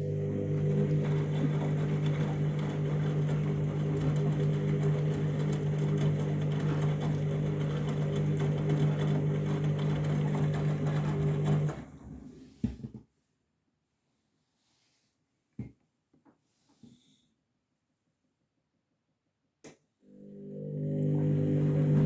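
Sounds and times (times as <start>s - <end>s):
washing machine motor humming: 0.0s - 12.4s, 20.2s - 22.0s.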